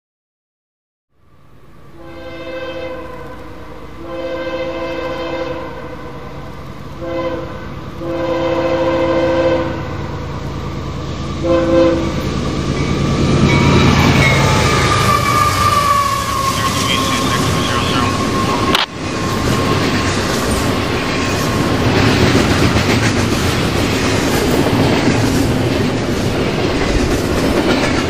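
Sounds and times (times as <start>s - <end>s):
train rumble: 1.3s - 28.0s
locomotive air horn blasts: 1.9s - 6.2s, 7.0s - 10.0s, 11.4s - 12.2s, 14.4s - 18.8s.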